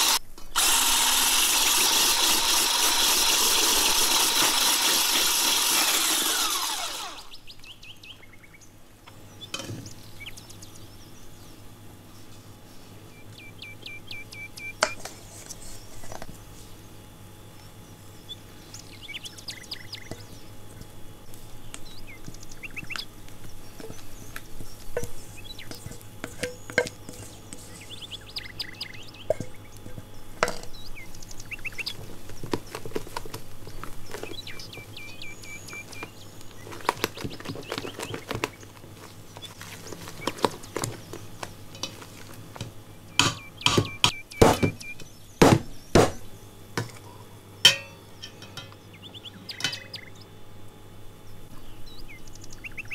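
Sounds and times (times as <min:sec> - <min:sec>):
birds chirping: 0:06.3 - 0:52.9
spatula scraping metal bowl: 0:25.0 - 0:27.7.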